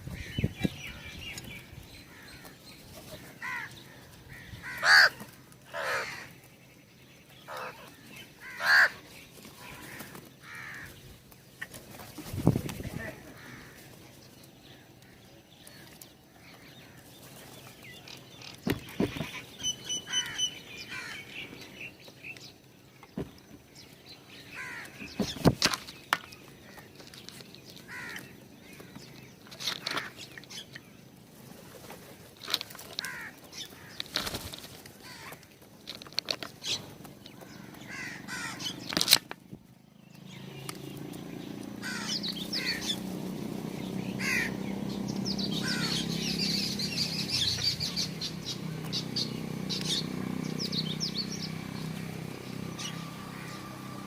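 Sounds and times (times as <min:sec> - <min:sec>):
small birds chirping: 0:00.0 - 0:54.0
wing flutters and taps: 0:15.7 - 0:20.4, 0:24.8 - 0:30.8, 0:31.5 - 0:37.9.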